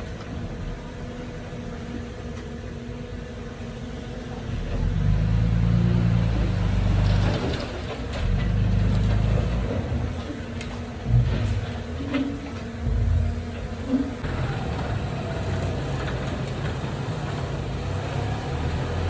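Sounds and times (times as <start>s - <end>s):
heavy diesel engine running: 4.3s - 19.0s.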